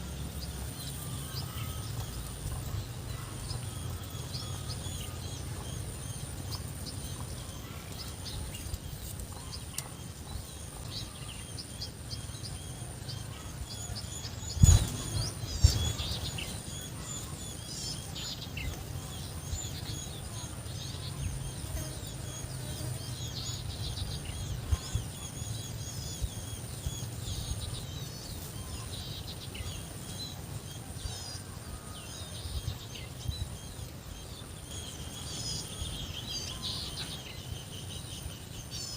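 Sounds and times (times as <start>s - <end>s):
low outdoor rumble: 0.0s - 38.9s
small birds chirping: 0.0s - 38.9s
loud thumps: 14.6s - 16.5s.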